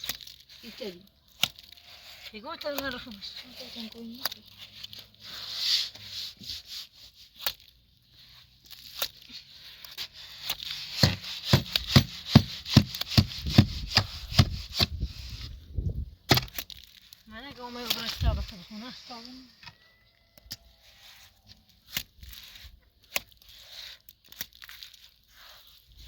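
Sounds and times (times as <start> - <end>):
scraping and rubbing: 0.0 - 26.0
steady knocking: 11.0 - 13.8.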